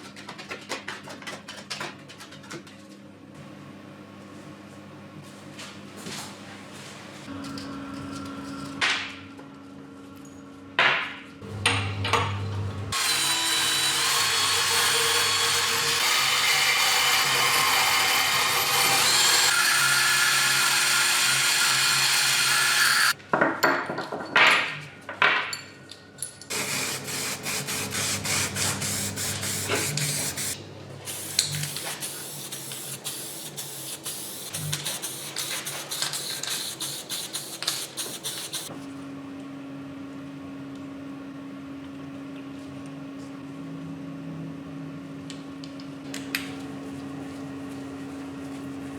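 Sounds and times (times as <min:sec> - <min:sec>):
power tool whirring: 0:12.4 - 0:23.2, 0:26.5 - 0:30.6.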